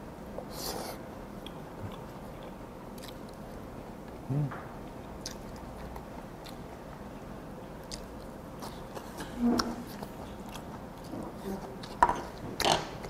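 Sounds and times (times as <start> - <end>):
person humming low: 4.3 - 4.7
wet chewing of raw fish: 7.7 - 13.0.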